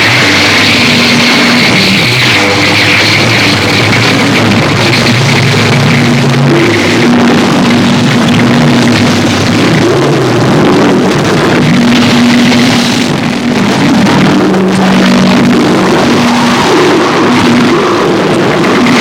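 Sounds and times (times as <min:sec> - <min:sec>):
loud dense noise music: 0:00.0 - 0:19.0
low droning tones: 0:00.0 - 0:19.0.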